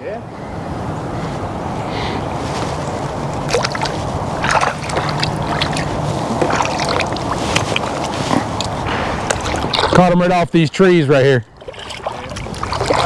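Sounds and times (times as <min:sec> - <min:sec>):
water lapping around a boat: 0:00.4 - 0:13.0
short sharp splashes: 0:03.4 - 0:10.1, 0:11.6 - 0:13.0.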